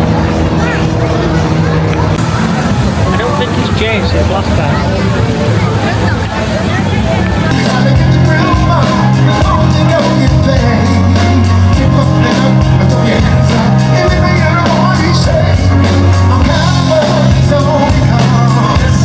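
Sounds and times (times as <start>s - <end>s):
bass notes: 0.0s - 19.0s
live band playing rock music: 7.5s - 19.0s
person singing: 7.5s - 19.0s.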